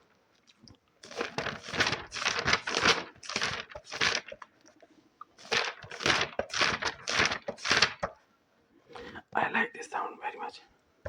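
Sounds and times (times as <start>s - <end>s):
paper crinkling and rustling: 1.0s - 4.6s, 5.4s - 8.2s.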